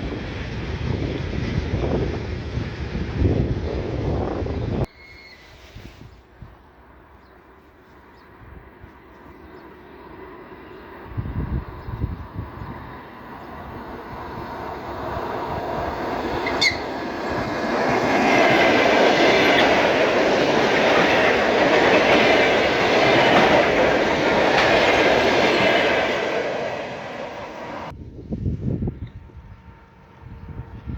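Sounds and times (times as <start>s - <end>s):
train passing on rails: 0.0s - 30.9s
high squeak: 4.9s - 5.6s.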